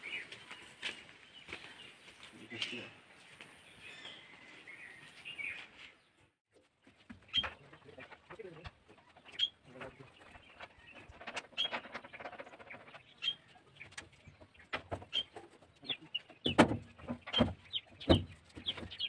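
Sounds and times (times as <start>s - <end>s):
bird chirping: 0.0s - 19.0s
metal clanks and knocks: 7.0s - 13.2s, 16.4s - 19.0s.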